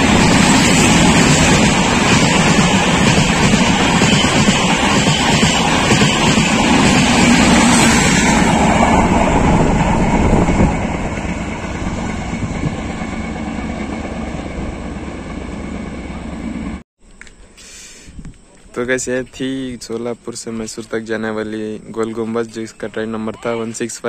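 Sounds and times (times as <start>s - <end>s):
train coaches rolling past: 0.0s - 16.8s.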